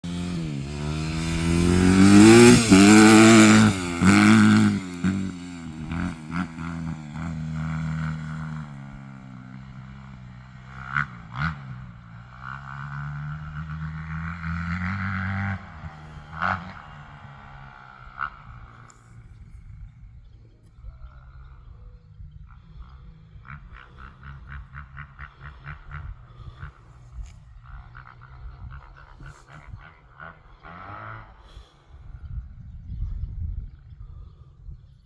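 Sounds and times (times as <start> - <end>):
dirt bike engine revving: 0.0 - 19.1.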